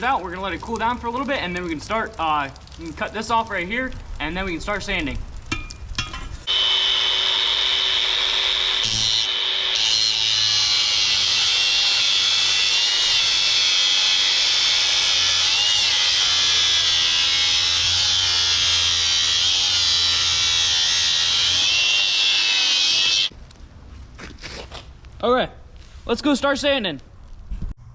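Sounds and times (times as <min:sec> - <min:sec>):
angle grinder cutting metal: 0:06.4 - 0:23.3.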